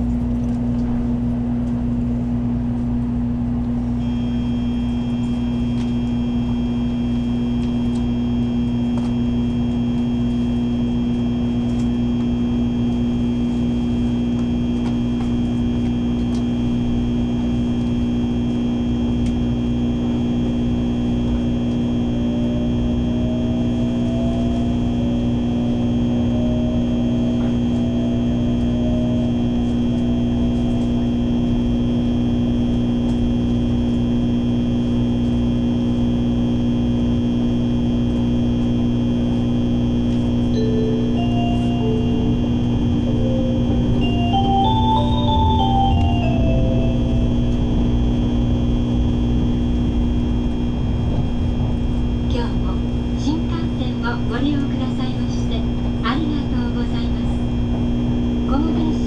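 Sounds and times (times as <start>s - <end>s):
train cabin hum and rumble: 0.0s - 59.0s
faint whine rising in pitch: 40.5s - 53.3s.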